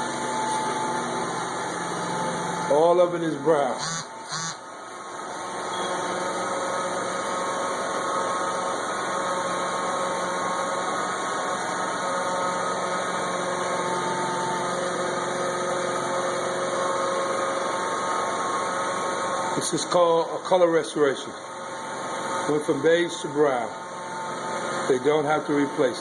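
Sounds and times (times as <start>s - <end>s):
machine motor humming: 0.0s - 20.4s.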